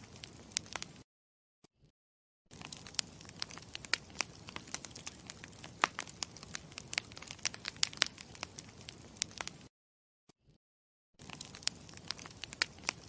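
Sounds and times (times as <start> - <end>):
campfire crackling and popping: 0.0 - 1.0, 2.5 - 9.7, 11.2 - 13.0.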